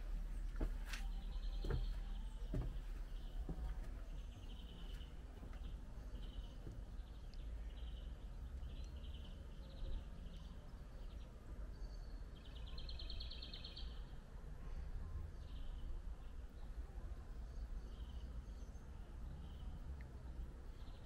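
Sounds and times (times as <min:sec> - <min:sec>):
low steady rumble: 0:00.0 - 0:11.7
small birds chirping: 0:00.0 - 0:21.0.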